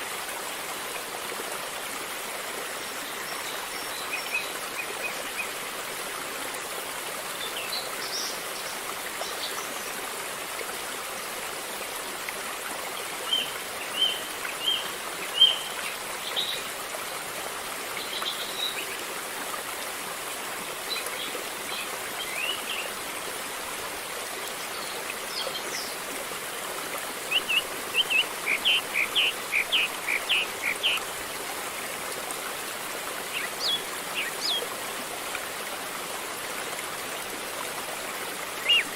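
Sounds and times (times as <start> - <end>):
river flowing: 0.0 - 38.9
birds chirping: 27.3 - 31.0.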